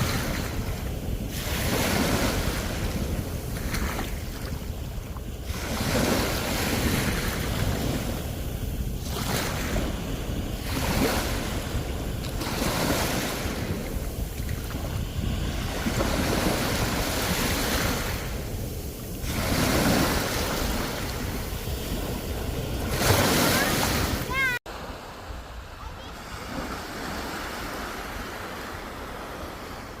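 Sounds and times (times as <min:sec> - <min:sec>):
sea waves breaking on beach: 0:00.0 - 0:30.0.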